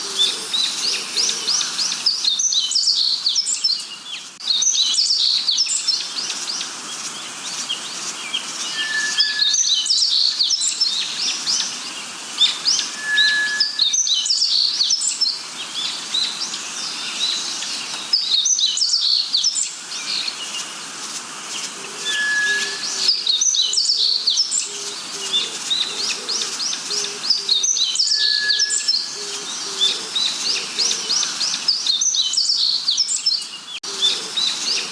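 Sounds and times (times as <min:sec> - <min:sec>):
birds chirping and singing: 0:00.0 - 0:34.9
short clear whistle: 0:22.1 - 0:22.9.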